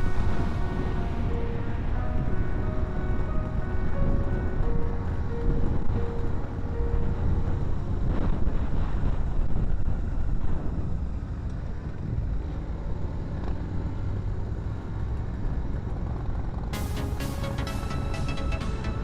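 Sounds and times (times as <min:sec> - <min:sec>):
wind noise: 0:00.0 - 0:12.5.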